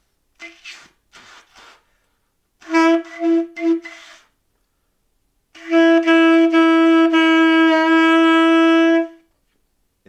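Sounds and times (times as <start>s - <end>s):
saxophone holding long note: 5.6s - 9.2s.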